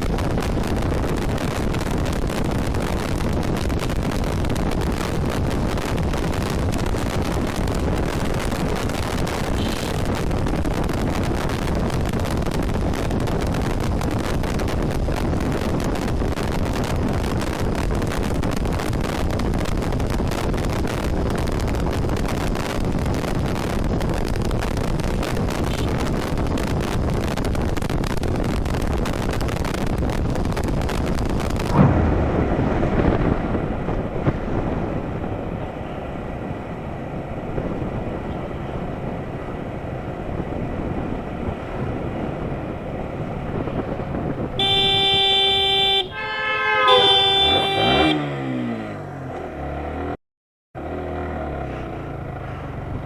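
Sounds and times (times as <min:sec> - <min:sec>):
wind rush on microphone: 0:00.0 - 0:48.2
loud thump: 0:31.6 - 0:34.4
motorcycle engine: 0:46.9 - 0:50.2.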